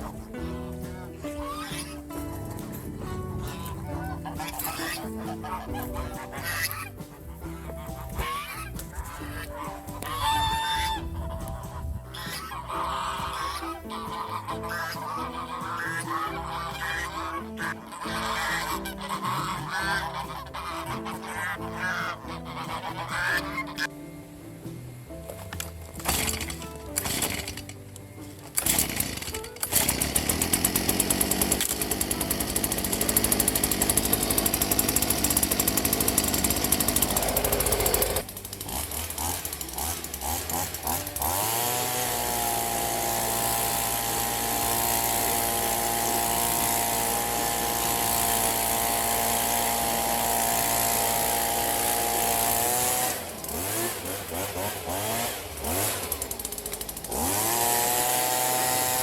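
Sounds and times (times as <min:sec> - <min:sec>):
petrol engine power tool revving: 0:26.0 - 0:27.8, 0:28.5 - 0:59.0.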